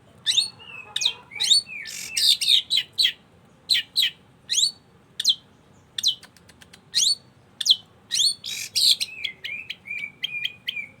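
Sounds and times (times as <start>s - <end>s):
bird singing sharp calls: 0.2s - 11.0s.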